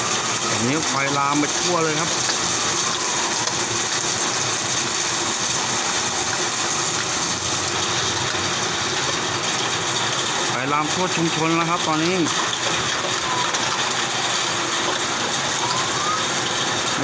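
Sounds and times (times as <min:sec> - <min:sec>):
heavy rain hiss: 0:00.0 - 0:17.0.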